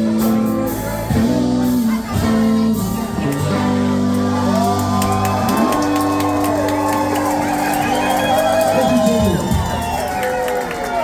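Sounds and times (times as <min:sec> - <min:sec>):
bass guitar sustained notes: 0:00.0 - 0:11.0
electric guitar sustained notes: 0:00.0 - 0:11.0.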